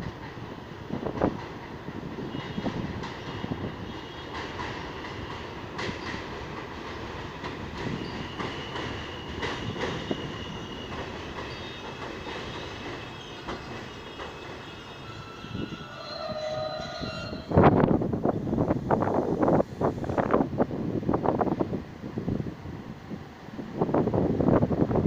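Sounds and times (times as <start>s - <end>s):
subway train rumbling on rails: 0.0s - 25.0s
high wheel squeal: 8.0s - 17.6s.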